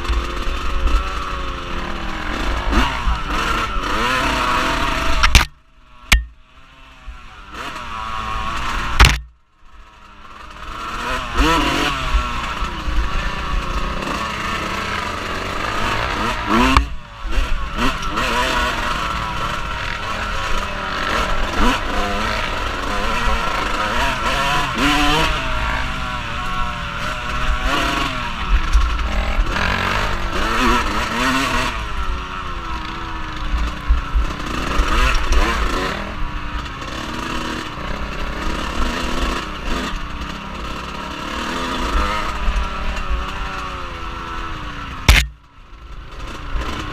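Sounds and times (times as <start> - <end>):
off-road vehicle engine revving: 0.0 - 9.3, 10.3 - 45.4, 46.0 - 46.9.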